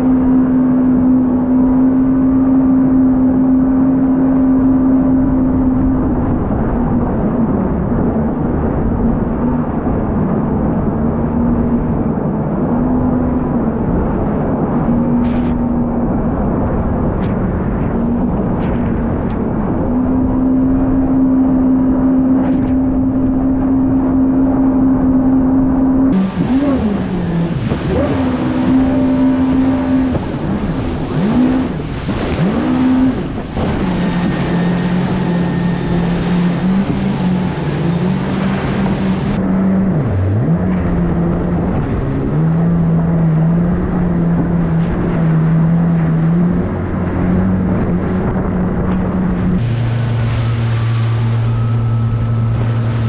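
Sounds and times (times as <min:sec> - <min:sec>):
wind: 0:00.0 - 0:53.0
jet ski engine revving: 0:19.4 - 0:53.0
water splashing: 0:26.1 - 0:53.0.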